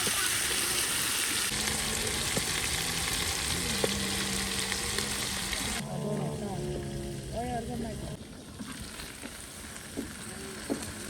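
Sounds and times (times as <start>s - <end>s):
food sizzling in hot oil: 0.0s - 5.8s.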